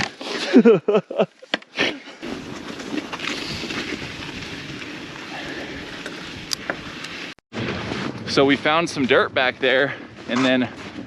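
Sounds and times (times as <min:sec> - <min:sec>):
mountain bike rolling on dirt trail: 0:02.2 - 0:11.0.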